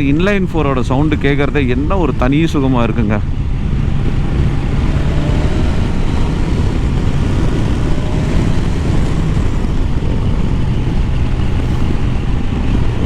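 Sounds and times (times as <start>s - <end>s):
wind over microphone: 0.0s - 13.0s
motorcycle engine running: 3.2s - 13.0s.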